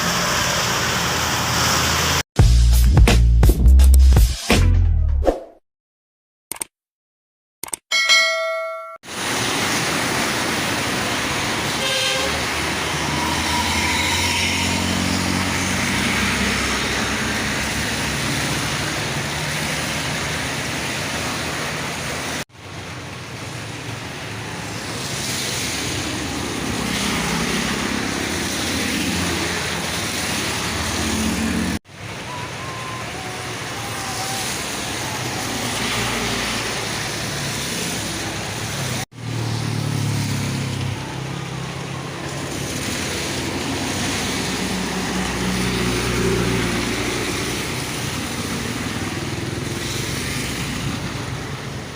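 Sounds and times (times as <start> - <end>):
rain and tyre hiss: 0.0 - 2.2, 9.0 - 51.9
traffic passing on wet road: 0.0 - 2.2, 9.0 - 51.9
vehicle horn toot: 11.8 - 12.4.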